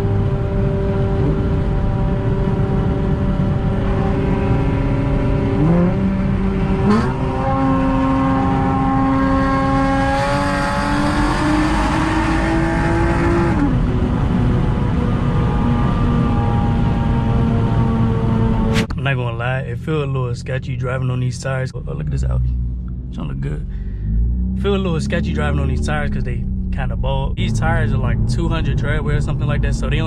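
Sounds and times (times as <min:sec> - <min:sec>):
car engine and exhaust: 0:00.0 - 0:30.0
sharp click: 0:18.7 - 0:19.0.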